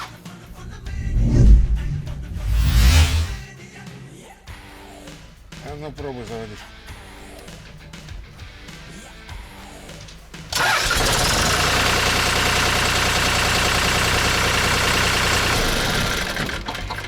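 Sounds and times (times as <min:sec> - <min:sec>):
diesel engine starting and running: 0:00.0 - 0:03.4, 0:10.5 - 0:17.0.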